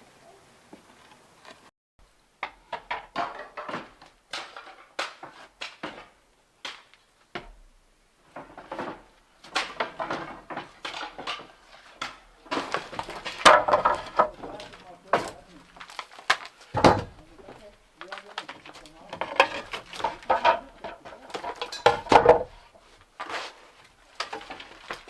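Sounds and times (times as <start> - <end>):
hard objects knocking: 9.6 - 15.5, 16.7 - 22.6.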